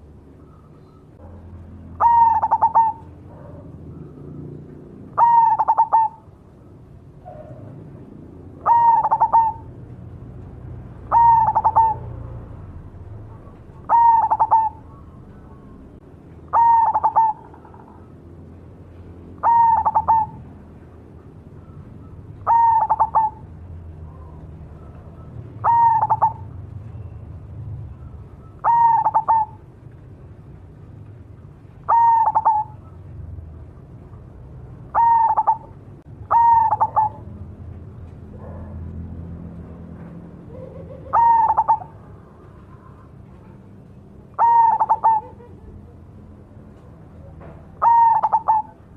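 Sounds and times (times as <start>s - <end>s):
dove cooing: 1.9s - 6.4s, 8.4s - 9.9s, 11.0s - 18.2s, 19.4s - 20.6s, 21.6s - 27.1s, 28.0s - 29.7s, 31.8s - 33.2s, 34.9s - 37.4s, 40.4s - 46.1s, 47.1s - 48.8s.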